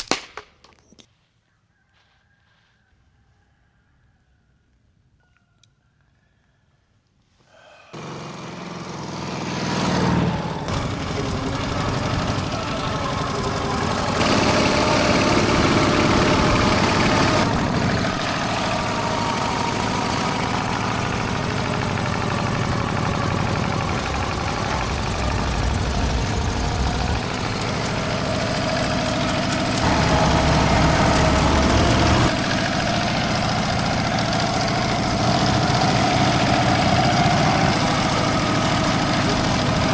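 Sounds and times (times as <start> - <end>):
motorcycle engine running: 8.0 - 39.9.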